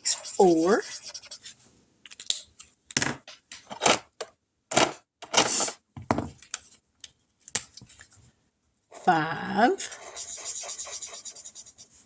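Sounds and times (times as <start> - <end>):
pen scribbling on paper: 0.0 - 1.5, 9.8 - 12.0.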